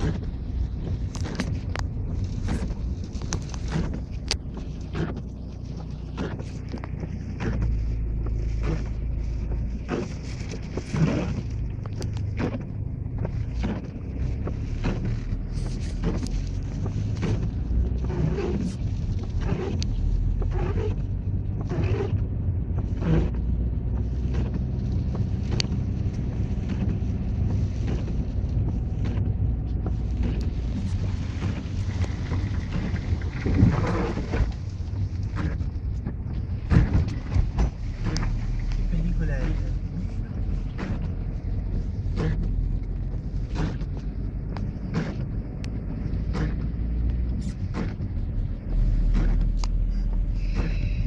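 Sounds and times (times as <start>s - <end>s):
strong wind buffeting microphone: 27.2s - 38.9s.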